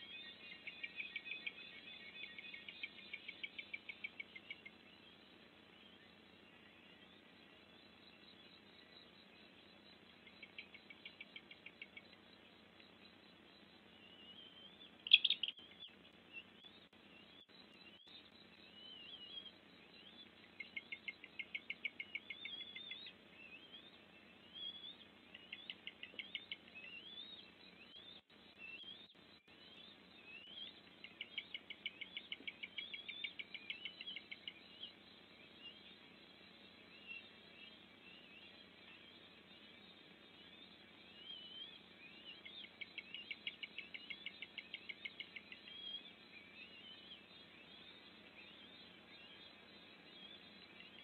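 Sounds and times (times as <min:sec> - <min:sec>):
birds whistling: 0:14.0 - 0:15.9, 0:40.5 - 0:51.0
bird trills: 0:14.0 - 0:16.0.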